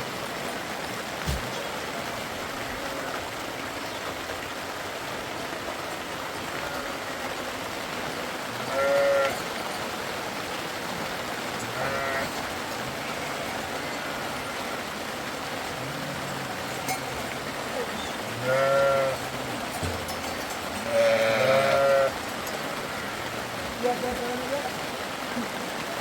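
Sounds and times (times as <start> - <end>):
rushing water: 0.0 - 26.0
livestock bleating: 6.6 - 7.3, 8.6 - 9.5, 11.7 - 14.9, 17.8 - 19.3, 20.8 - 23.5.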